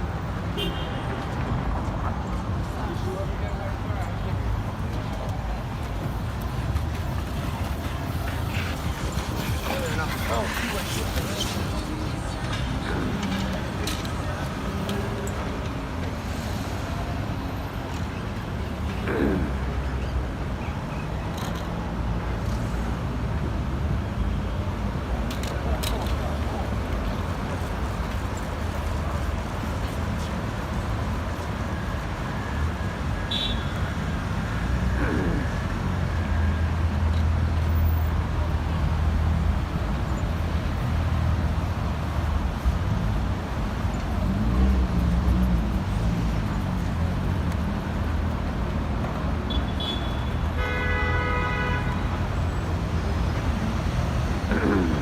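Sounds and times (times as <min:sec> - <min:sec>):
city street traffic rumble: 0:00.0 - 0:55.0
vehicle horn: 0:00.6 - 0:01.2, 0:33.3 - 0:33.8, 0:49.5 - 0:52.2.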